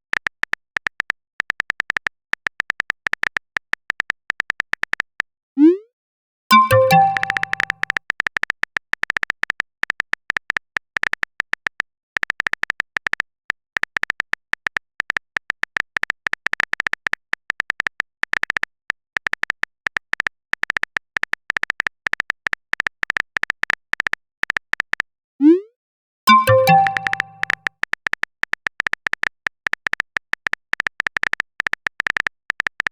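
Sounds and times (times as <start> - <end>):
phone keyboard typing clicks: 6.5 - 25.1, 26.3 - 32.9.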